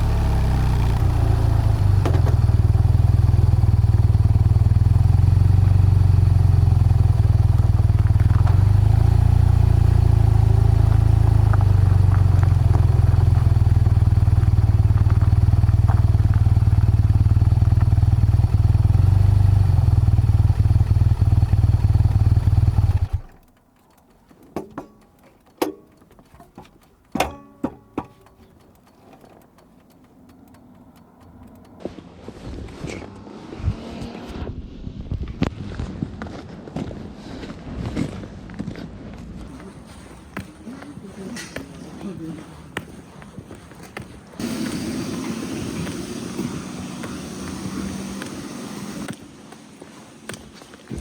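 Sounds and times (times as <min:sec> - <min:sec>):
sharp clicks and knocks: 0:00.0 - 0:04.2, 0:22.9 - 0:32.0
motorcycle engine running: 0:00.0 - 0:23.6, 0:39.5 - 0:51.0.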